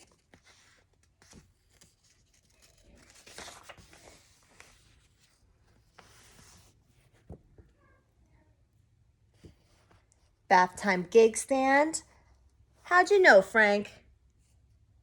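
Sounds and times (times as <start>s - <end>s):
paper pages rustling: 0.0s - 7.7s.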